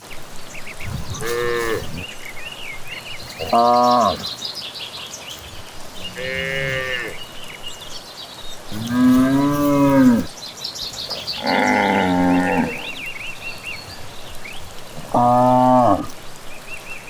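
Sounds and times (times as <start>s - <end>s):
faint birds chirping: 0.0s - 17.0s
cows mooing: 1.0s - 2.1s, 3.4s - 4.3s, 5.9s - 7.4s, 8.6s - 10.4s, 11.1s - 13.2s, 14.8s - 16.2s.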